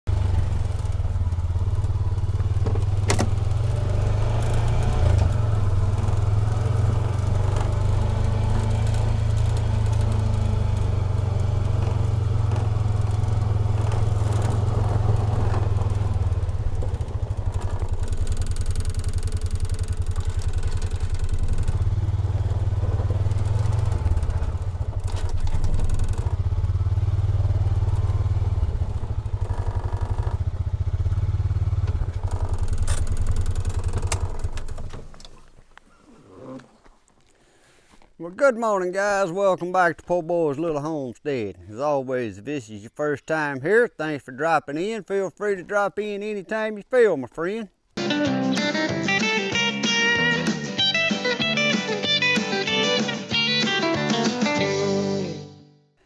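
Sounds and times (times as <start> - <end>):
engine pulsing rumble: 0.1 - 36.8.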